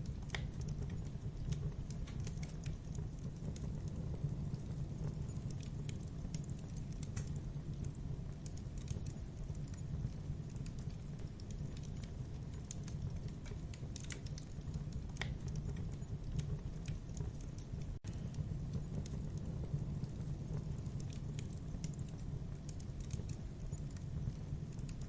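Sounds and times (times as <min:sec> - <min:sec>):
low rumble of flames: 0:00.0 - 0:25.0
wood crackling and popping: 0:00.0 - 0:25.0.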